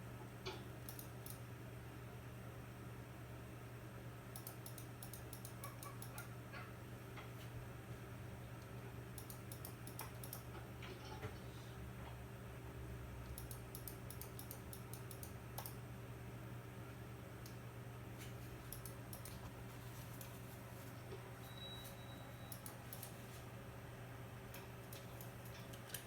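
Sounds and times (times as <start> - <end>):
rapid small clicks: 0.4 - 1.4, 4.3 - 6.3, 8.6 - 10.6, 13.2 - 15.8, 18.7 - 20.4, 22.5 - 23.2, 24.5 - 26.0.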